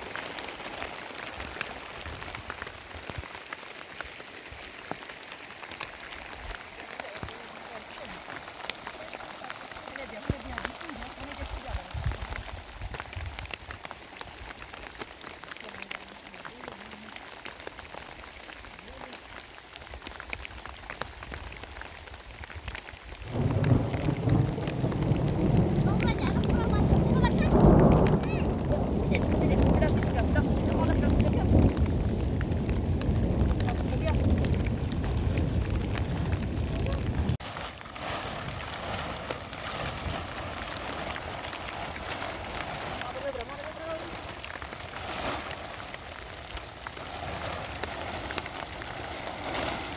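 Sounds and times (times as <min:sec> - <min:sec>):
rain drops ticking on surface: 0:00.0 - 0:49.9
low rumble of thunder: 0:23.2 - 0:37.4.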